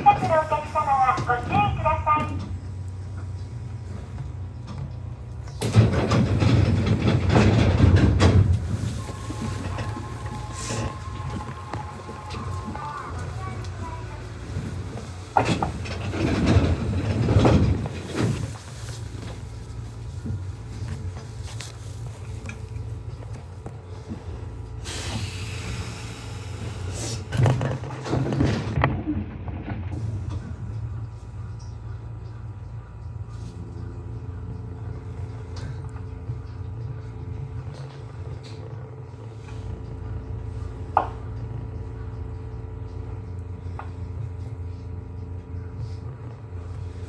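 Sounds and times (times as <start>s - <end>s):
train running noise: 0.0s - 47.0s
train wheels rattling on rails: 0.0s - 47.0s
hiss: 24.8s - 27.2s.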